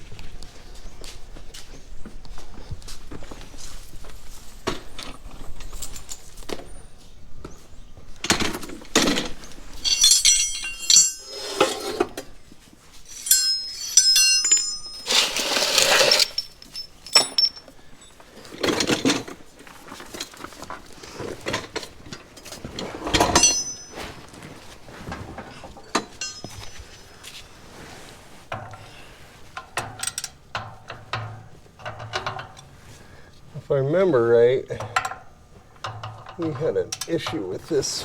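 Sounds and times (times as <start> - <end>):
scraping and shuffling: 8.3 - 29.8
metal hand tools clinking: 9.0 - 12.4, 13.1 - 18.2, 23.1 - 24.3, 25.6 - 27.2.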